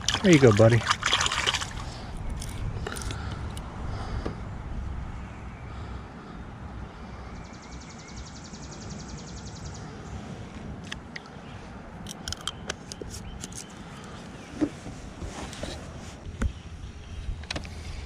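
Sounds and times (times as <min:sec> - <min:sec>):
steady low rumble: 0:00.8 - 0:07.7.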